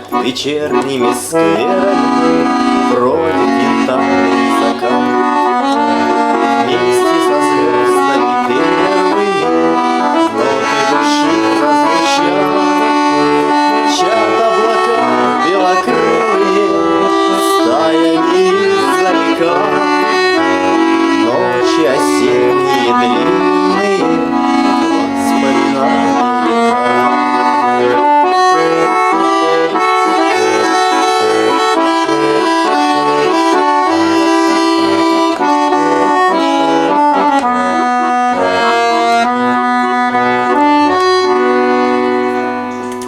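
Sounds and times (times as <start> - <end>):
button accordion playing slow waltz: 0.0 - 43.0.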